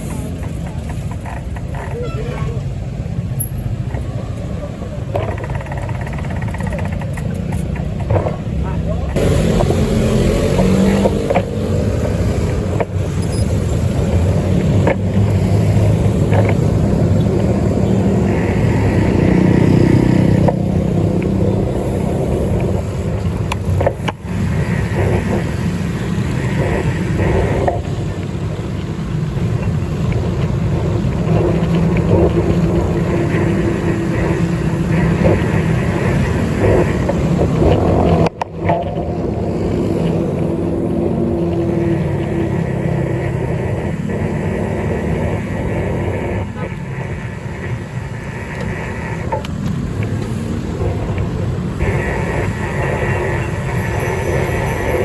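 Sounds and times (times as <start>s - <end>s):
moving vehicle rumble: 0.0s - 55.0s.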